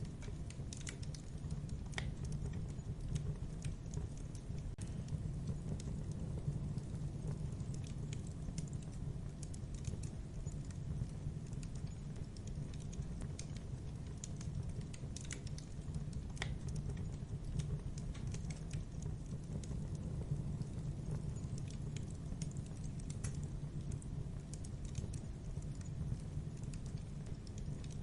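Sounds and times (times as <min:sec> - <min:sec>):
burning wood pops and snaps: 0:00.0 - 0:28.0
campfire crackling: 0:00.0 - 0:28.0.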